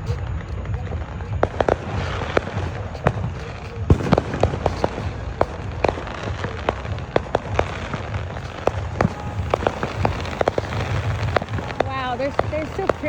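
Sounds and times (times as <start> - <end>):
firecrackers popping and cracking: 0.0 - 13.0.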